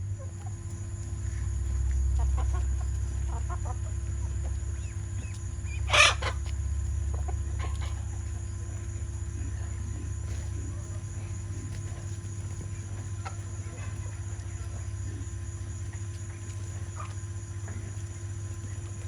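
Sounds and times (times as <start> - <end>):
chickens clucking: 0.1 - 19.0
chicken squawk: 2.2 - 4.0, 4.8 - 8.2.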